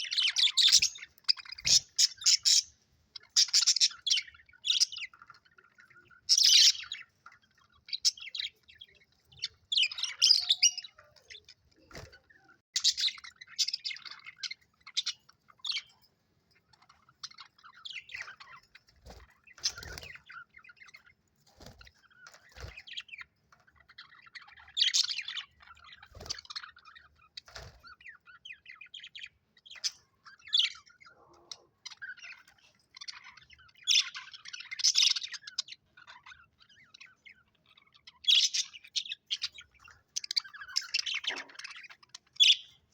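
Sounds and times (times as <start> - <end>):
budgerigars chirping and warbling: 0.0 - 42.9.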